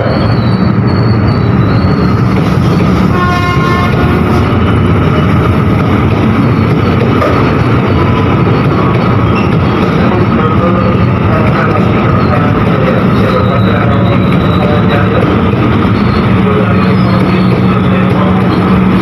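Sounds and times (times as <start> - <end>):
train rumbling past: 0.0 - 19.0
train horn toot: 3.0 - 4.6.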